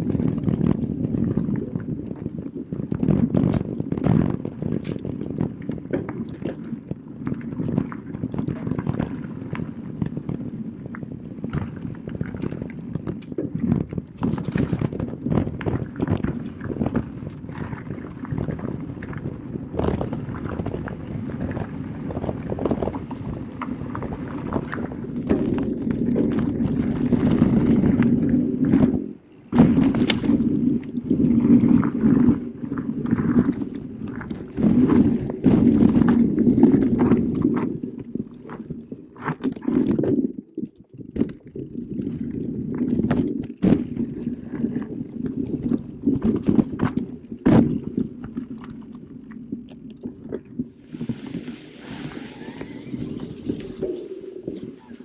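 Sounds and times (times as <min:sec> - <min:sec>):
bike knocks and rattles over bumps: 0:22.8 - 0:37.2.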